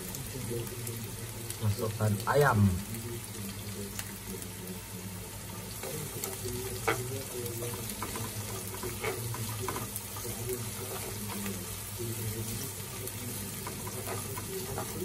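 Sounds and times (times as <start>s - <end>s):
aromatics sizzling in hot oil: 0.0s - 15.0s
spatula scraping and tapping pan: 5.8s - 15.0s.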